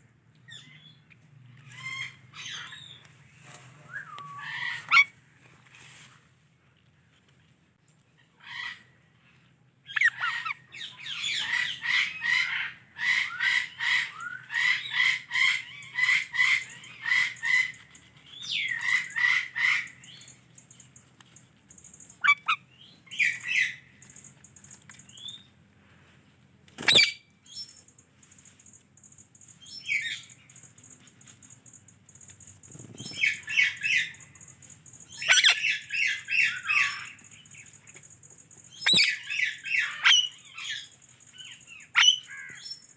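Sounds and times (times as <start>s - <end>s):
parrot squawking and chirping: 1.7s - 3.0s, 3.9s - 5.2s, 9.9s - 17.8s, 18.4s - 20.2s, 22.2s - 23.8s, 26.9s - 27.2s, 32.9s - 34.2s, 35.1s - 37.2s, 38.7s - 40.9s, 41.7s - 42.8s.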